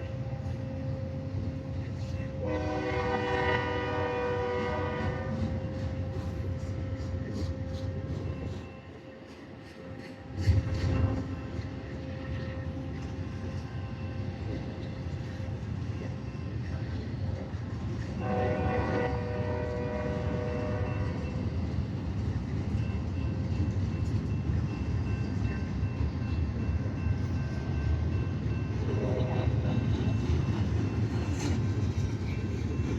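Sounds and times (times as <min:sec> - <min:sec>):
train horn chord: 0:00.0 - 0:08.2, 0:18.2 - 0:21.4
freight train rumbling past: 0:00.0 - 0:32.9.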